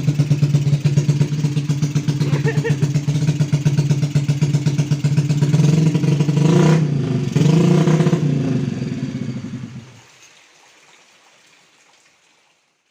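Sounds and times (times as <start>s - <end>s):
two-stroke motorcycle engine revving: 0.0s - 10.0s.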